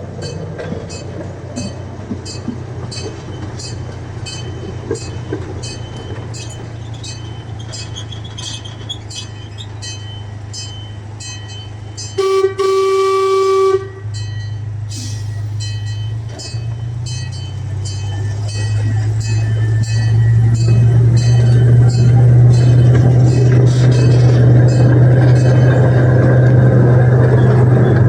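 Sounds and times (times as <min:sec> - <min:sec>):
train engine hum: 0:00.0 - 0:28.0
wheels clicking on track: 0:00.0 - 0:28.0
train horn: 0:12.2 - 0:14.2.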